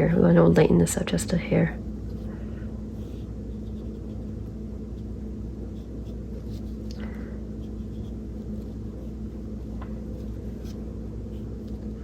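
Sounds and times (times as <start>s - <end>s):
low room hum: 0.0s - 12.0s
paintbrush scratching on paper: 2.9s - 6.9s, 7.5s - 11.8s.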